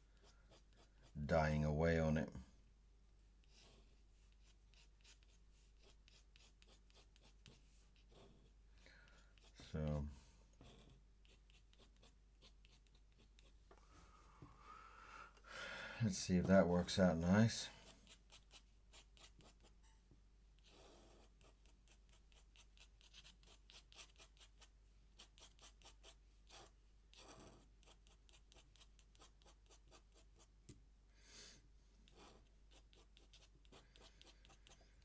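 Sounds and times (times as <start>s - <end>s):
pen scratching on paper: 0.1s - 1.2s, 3.4s - 8.5s, 9.1s - 9.7s, 10.6s - 13.6s, 17.8s - 19.8s, 20.6s - 30.5s, 32.1s - 35.0s.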